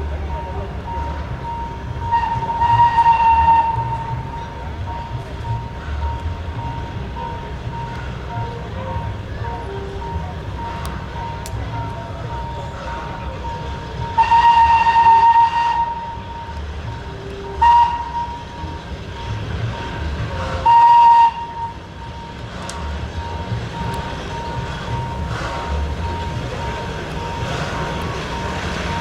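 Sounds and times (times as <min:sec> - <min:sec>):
steam locomotive whistle blasts: 0:00.9 - 0:04.5, 0:13.9 - 0:16.6, 0:17.3 - 0:18.8, 0:20.4 - 0:22.2.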